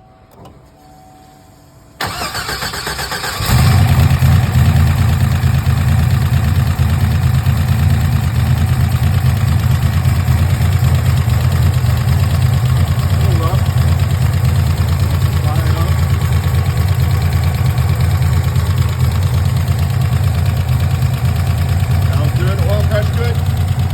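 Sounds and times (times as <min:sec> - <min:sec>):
starter motor cranking: 0:02.0 - 0:04.2
car engine idling loudly: 0:03.4 - 0:23.9.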